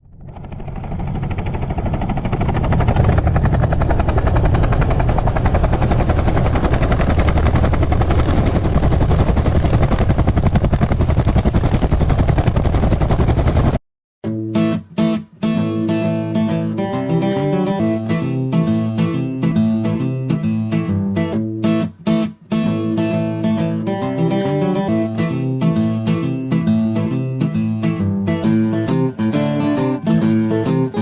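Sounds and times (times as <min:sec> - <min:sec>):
helicopter rotor chopping: 0:00.0 - 0:13.8
strummed acoustic guitar music: 0:14.2 - 0:31.0.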